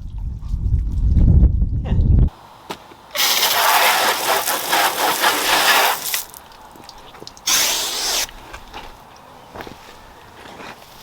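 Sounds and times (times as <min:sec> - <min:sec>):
hose spraying water on car: 0:03.1 - 0:06.5, 0:07.4 - 0:08.3.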